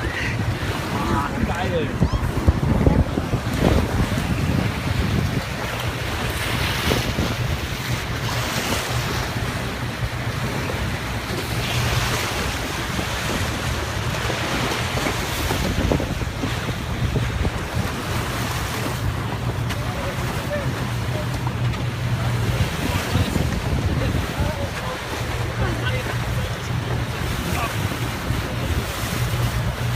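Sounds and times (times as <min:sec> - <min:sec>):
low engine hum: 0:00.0 - 0:29.9
water rushing past boat: 0:00.0 - 0:29.9
wind buffeting microphone: 0:00.0 - 0:29.9.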